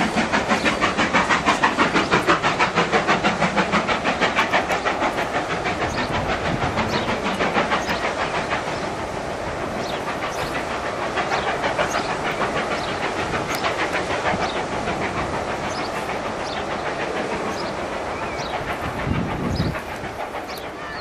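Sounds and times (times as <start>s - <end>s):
train wheels clattering: 0.0s - 21.0s.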